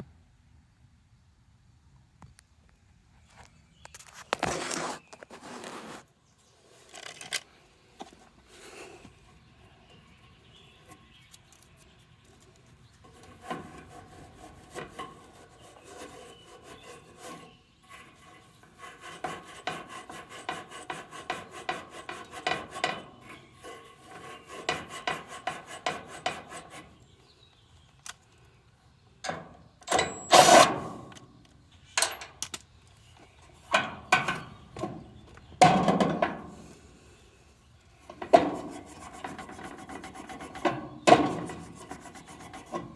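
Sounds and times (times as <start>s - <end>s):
hand tool rasping on metal: 13.0s - 27.0s, 38.0s - 42.9s
knocks and clunks: 33.7s - 36.5s.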